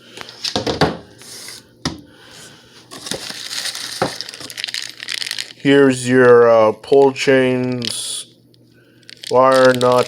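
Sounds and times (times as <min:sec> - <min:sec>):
packing rustling: 0:02.9 - 0:05.6.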